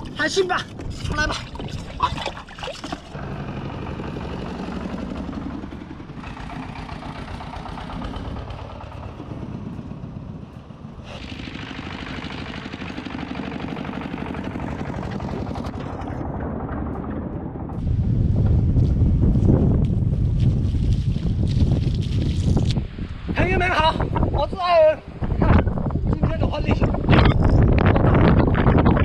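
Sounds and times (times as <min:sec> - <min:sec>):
small engine running: 0:03.1 - 0:17.9.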